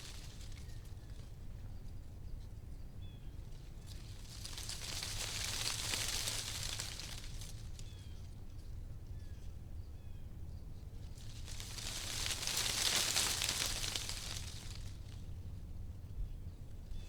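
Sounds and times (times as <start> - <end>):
wind rustling tree leaves: 0.0 - 1.5, 3.4 - 8.5, 11.0 - 15.7.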